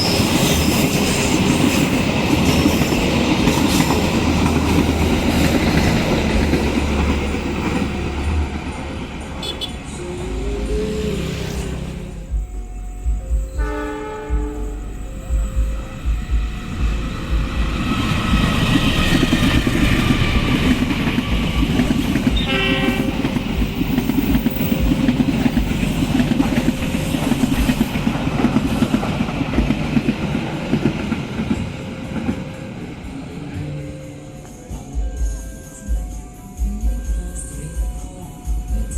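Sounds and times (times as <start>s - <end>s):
train wheels rattling on rails: 0.0s - 38.9s
train horn blast: 9.4s - 10.4s, 13.5s - 15.1s, 22.2s - 23.6s.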